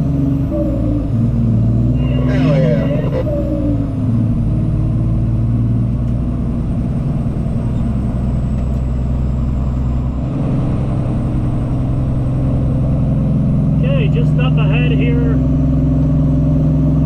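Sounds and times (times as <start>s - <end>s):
truck diesel engine droning: 0.0s - 17.0s.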